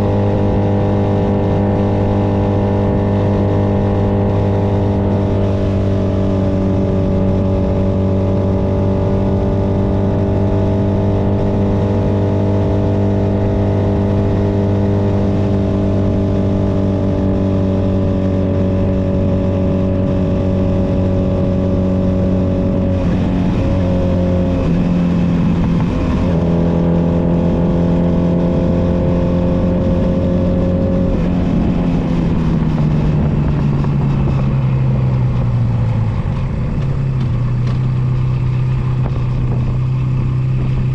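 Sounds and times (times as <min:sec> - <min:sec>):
motorcycle engine running: 0:00.0 - 0:40.9
wind noise on microphone: 0:00.0 - 0:40.9.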